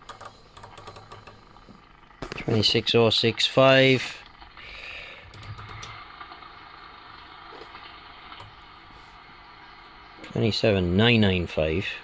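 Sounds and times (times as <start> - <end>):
radio static hiss: 1.4 - 12.0.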